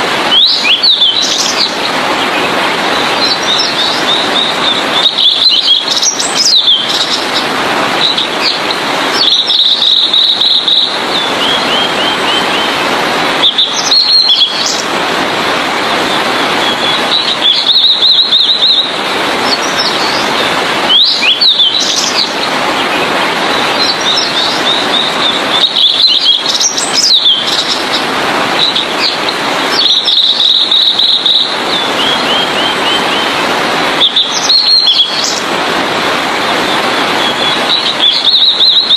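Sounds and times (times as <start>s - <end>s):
bird singing whistles and trills: 0.3s - 1.8s, 3.1s - 7.3s, 8.0s - 12.8s, 13.4s - 14.8s, 16.6s - 20.3s, 20.9s - 28.0s, 28.6s - 33.4s, 34.0s - 35.4s, 36.7s - 38.9s.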